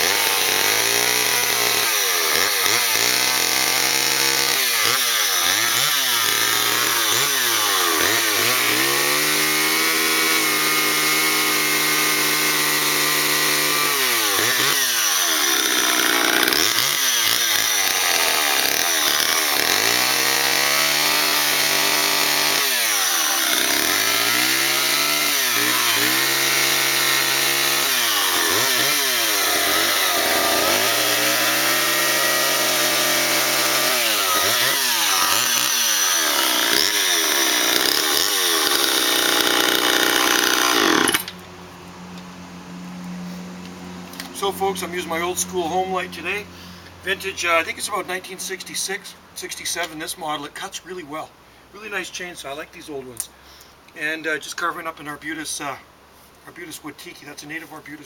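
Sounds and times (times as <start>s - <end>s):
chainsaw cutting wood: 0.0s - 41.4s.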